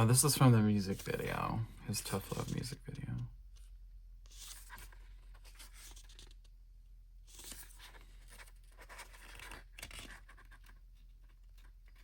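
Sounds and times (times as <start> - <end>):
paper pages rustling: 3.5 - 6.6, 7.2 - 12.0.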